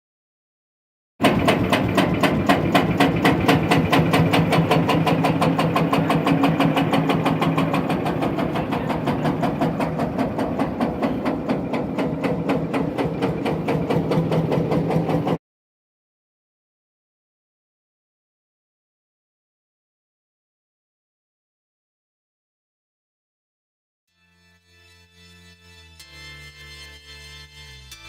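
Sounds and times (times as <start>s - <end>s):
engine idling: 1.2s - 15.4s.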